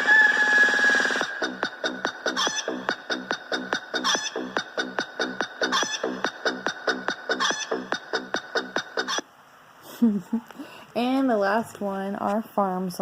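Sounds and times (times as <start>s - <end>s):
novelty song chicken clucks: 1.7s - 9.2s
chicken squawk: 2.2s - 3.0s, 3.9s - 4.6s, 5.6s - 6.3s, 7.3s - 8.0s, 9.0s - 9.2s.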